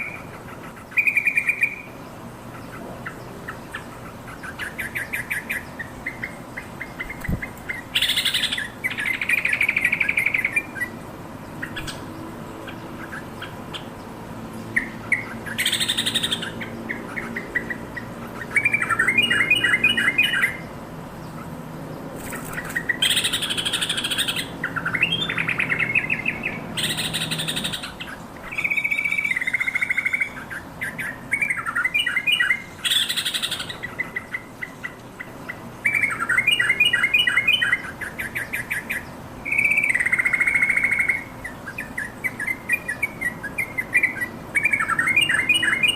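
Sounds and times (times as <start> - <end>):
bulbul singing: 0.0 - 21.6, 22.2 - 45.9.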